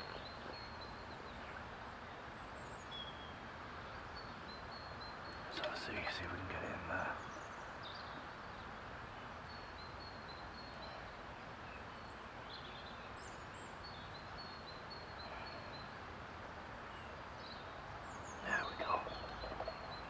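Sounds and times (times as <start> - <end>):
outdoor background hiss: 0.0 - 20.0
small bird chirping: 16.9 - 20.0.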